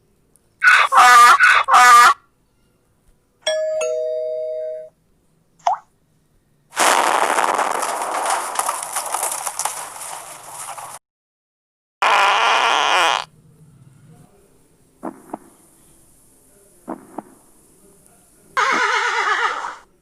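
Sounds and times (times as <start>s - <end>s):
loud voice-like cry: 0.6s - 2.2s
two-tone doorbell chime: 3.4s - 4.9s.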